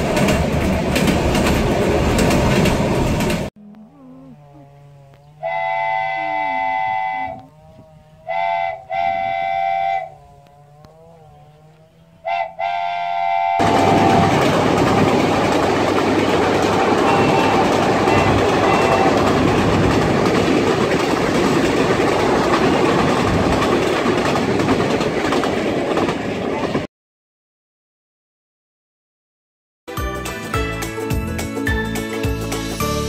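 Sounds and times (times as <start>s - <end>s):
train wheels rumbling and rattling: 0.0s - 3.5s, 13.6s - 26.9s
train horn: 5.4s - 10.5s, 12.0s - 14.5s, 16.6s - 19.6s.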